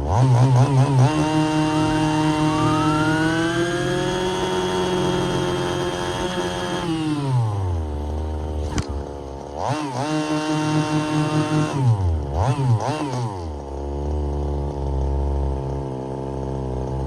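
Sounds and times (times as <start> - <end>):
small two-stroke engine revving: 0.0 - 17.0
sharp click: 8.6 - 9.1.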